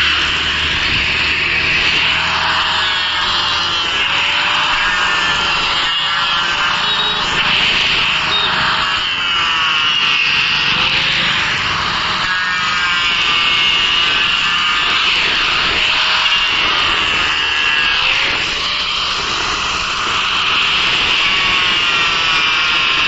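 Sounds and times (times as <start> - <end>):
power tool cutting wood: 0.0 - 23.0.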